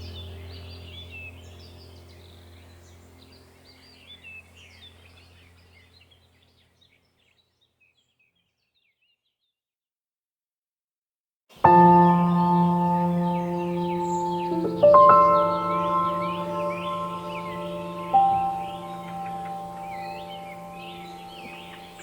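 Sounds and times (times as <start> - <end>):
low steady hum: 0.0 - 6.9, 11.7 - 22.0
small birds chirping: 0.0 - 9.6, 11.6 - 22.0
ambient music with ringing tones: 11.7 - 22.0.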